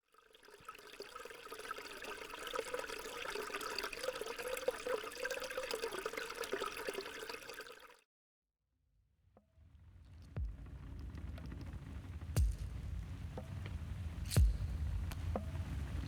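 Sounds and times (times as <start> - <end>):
running water splashing: 0.0 - 8.0.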